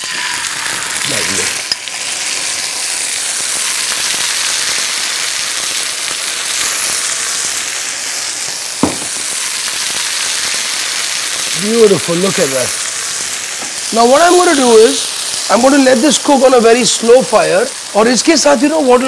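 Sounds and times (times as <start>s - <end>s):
chicken sizzling in frying pan: 0.0s - 19.0s
short knock: 8.8s - 9.1s.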